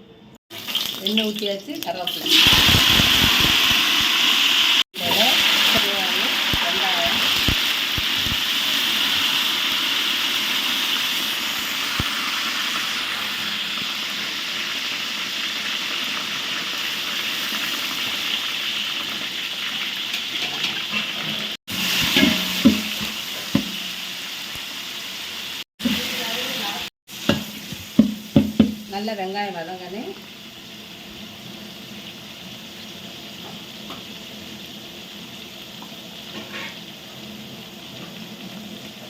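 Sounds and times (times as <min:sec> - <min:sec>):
onions sizzling in hot oil: 0:00.5 - 0:39.0.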